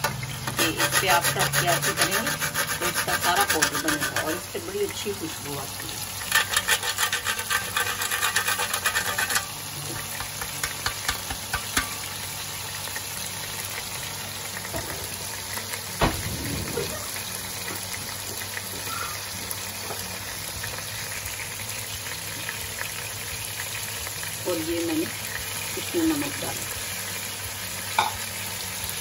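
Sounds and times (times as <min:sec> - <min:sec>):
food sizzling in oil: 0:00.0 - 0:29.0
spice rasped on metal grater: 0:00.4 - 0:04.6, 0:06.2 - 0:11.9.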